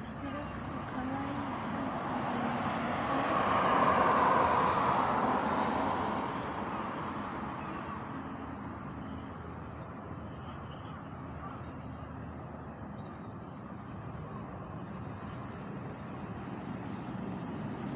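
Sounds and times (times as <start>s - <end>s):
road vehicle passing by: 0.2s - 8.9s.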